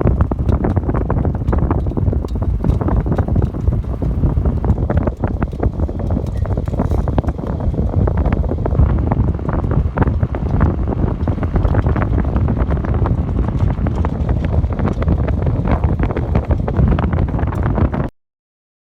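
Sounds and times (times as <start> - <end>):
wind buffeting microphone: 0.0 - 18.1.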